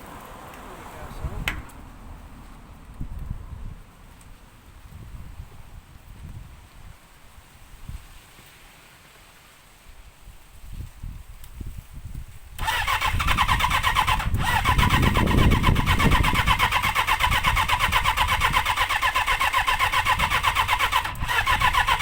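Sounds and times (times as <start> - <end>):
motorcycle starter cranking engine: 12.6 - 22.0.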